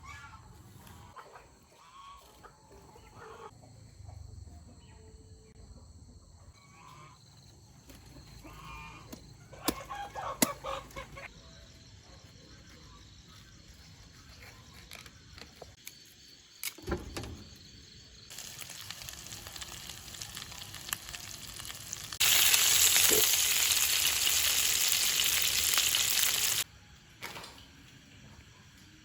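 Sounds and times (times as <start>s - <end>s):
chickens clucking: 0.0s - 5.0s, 8.1s - 11.3s.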